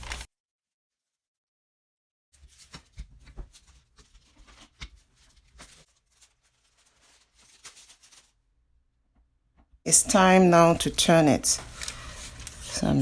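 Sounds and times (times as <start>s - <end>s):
soft rustling: 2.4s - 8.4s.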